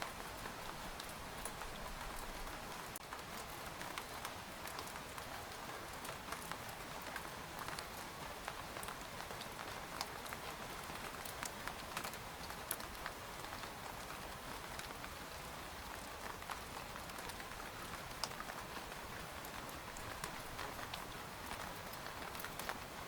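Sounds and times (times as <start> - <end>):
rain falling on a tent: 0.0 - 23.0.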